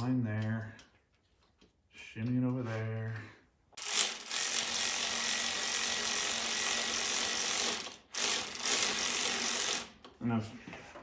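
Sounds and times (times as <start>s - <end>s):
ratchet whirring: 3.8s - 10.0s.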